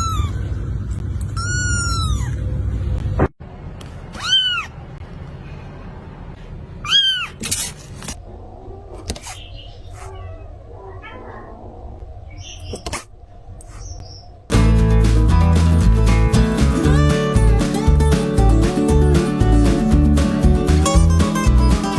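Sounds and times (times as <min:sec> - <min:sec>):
cat meowing: 0:04.2 - 0:04.8.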